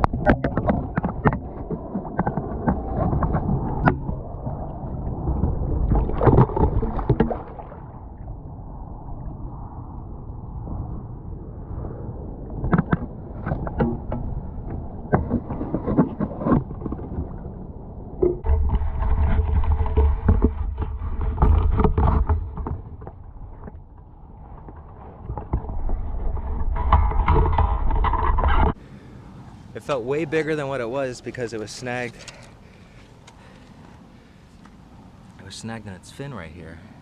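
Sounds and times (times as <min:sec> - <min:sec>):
water splashing: 0:00.0 - 0:08.3
low rumble on microphone: 0:00.0 - 0:30.6.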